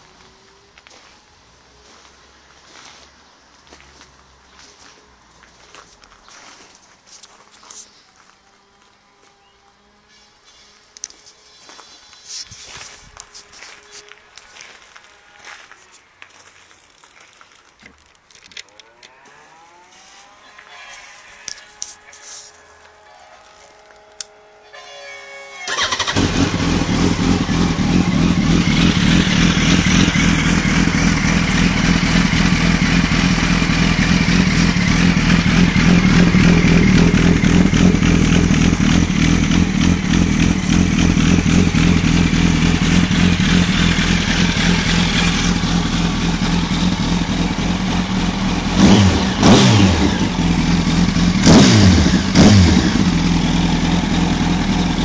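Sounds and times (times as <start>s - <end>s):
motorcycle engine idling: 25.7s - 55.0s
motorcycle engine revving: 25.7s - 55.0s
motorcycle engine starting: 25.7s - 55.0s.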